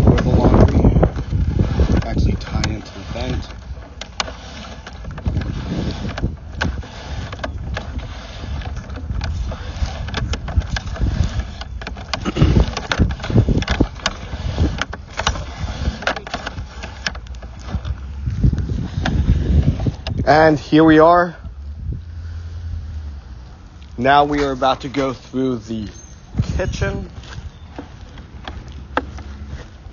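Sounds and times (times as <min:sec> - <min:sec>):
low rumble: 0:17.5 - 0:27.4.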